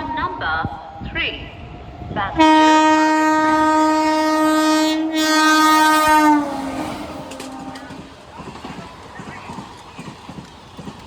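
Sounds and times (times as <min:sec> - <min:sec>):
locomotive horn blast: 0:02.4 - 0:08.1.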